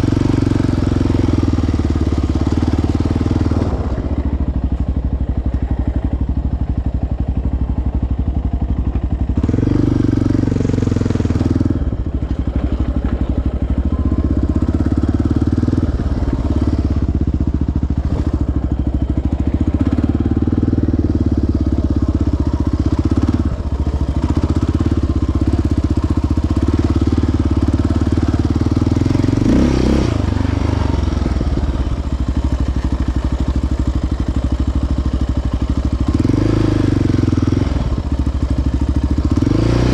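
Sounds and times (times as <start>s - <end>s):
quad engine running: 0.0s - 39.9s.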